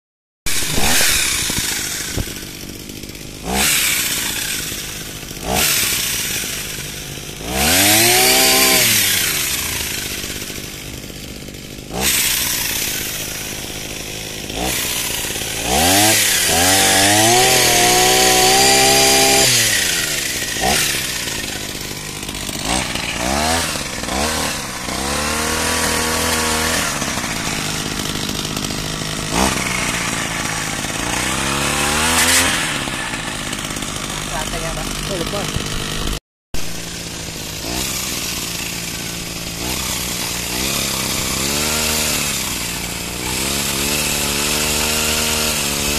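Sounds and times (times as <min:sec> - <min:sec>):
small engine revving: 0:00.5 - 0:45.9.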